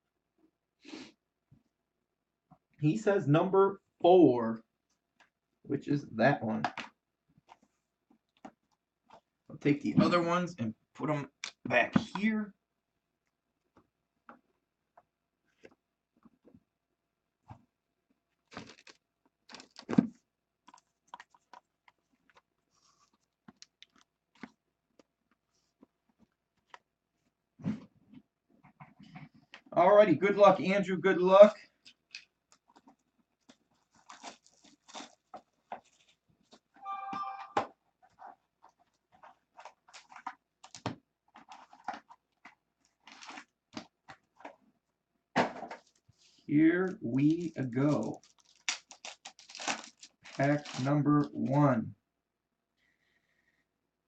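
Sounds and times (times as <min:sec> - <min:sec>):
card packaging crinkling: 0:18.5 - 0:24.5, 0:32.0 - 0:36.7, 0:38.1 - 0:43.5, 0:46.9 - 0:51.4.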